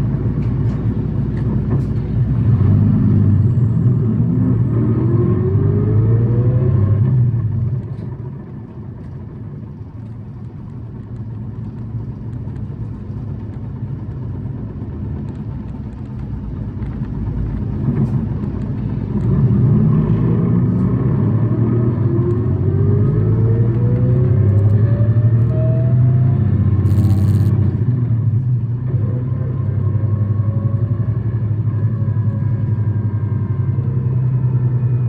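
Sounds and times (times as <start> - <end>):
bus engine running: 0.0 - 35.0
whine rising in pitch: 2.3 - 7.5, 19.1 - 28.0.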